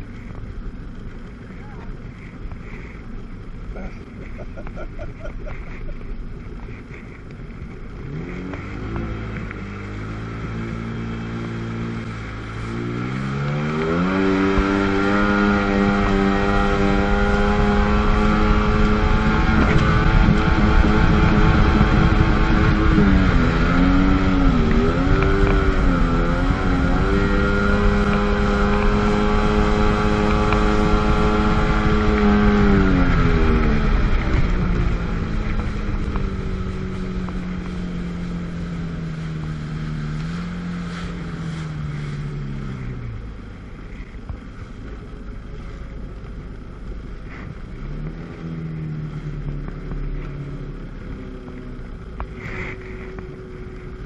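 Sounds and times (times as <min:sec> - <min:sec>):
jet ski engine revving: 0:00.1 - 0:54.0.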